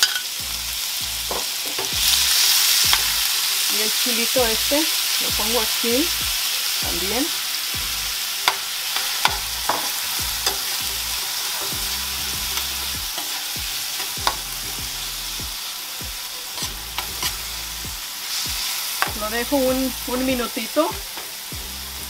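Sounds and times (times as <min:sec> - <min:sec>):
metal spoon scraping a pan: 0:00.0 - 0:00.4, 0:07.6 - 0:14.6, 0:16.4 - 0:19.1
onion and tomato sizzling in oil: 0:00.0 - 0:22.0.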